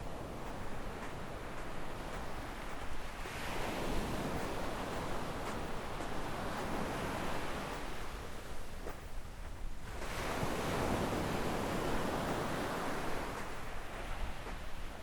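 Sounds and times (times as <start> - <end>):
sea waves washing up beach: 0.0 - 8.6, 9.8 - 15.0.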